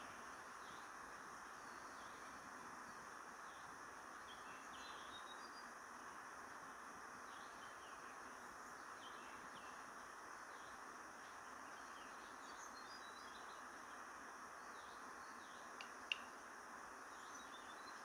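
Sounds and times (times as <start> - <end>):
steady hiss: 0.0 - 18.0
faint high bird chirps: 3.5 - 5.8, 10.5 - 14.0, 17.1 - 18.0.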